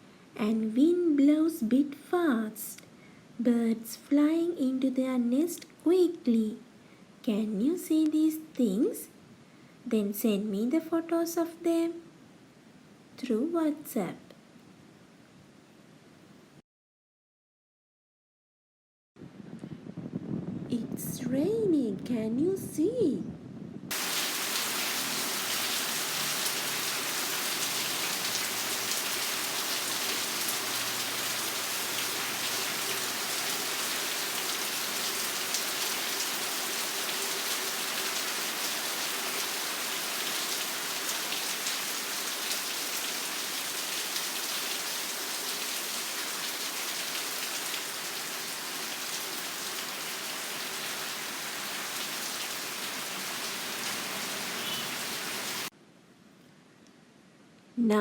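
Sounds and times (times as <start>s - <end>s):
steady rain falling: 23.9s - 55.7s.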